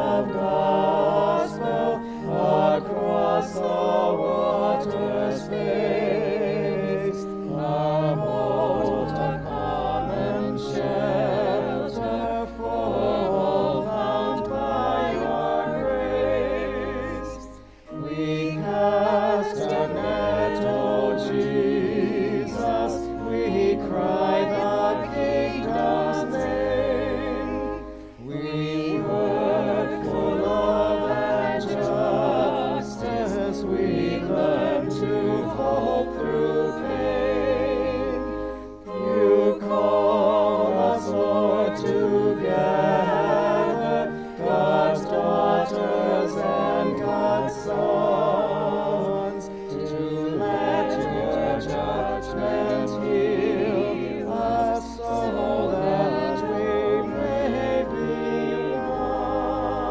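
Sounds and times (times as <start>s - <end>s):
sustained low accompaniment: 0.0s - 59.9s
voices singing a slow hymn: 0.0s - 59.9s.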